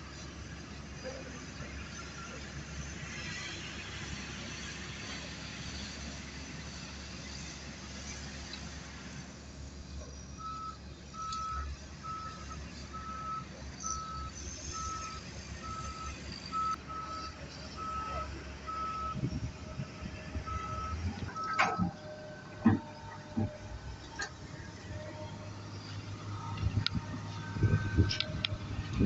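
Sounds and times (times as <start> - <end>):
diesel engine running: 0.0 - 29.0
reverse alarm beeping: 10.4 - 19.2.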